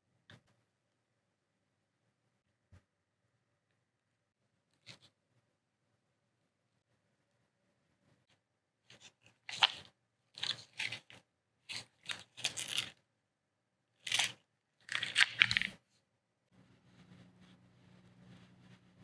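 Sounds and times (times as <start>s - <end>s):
faint low hum: 16.5s - 19.0s.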